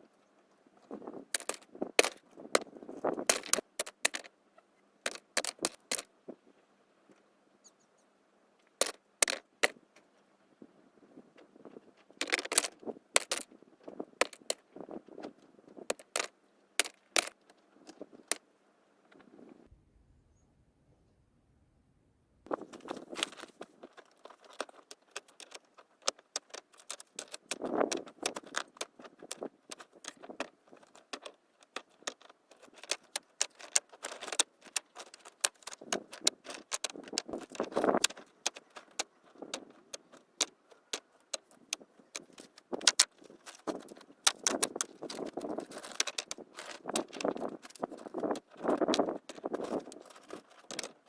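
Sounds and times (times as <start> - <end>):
hard objects clinking: 12.2 - 13.5, 22.9 - 51.0
rustling: 22.5 - 51.0.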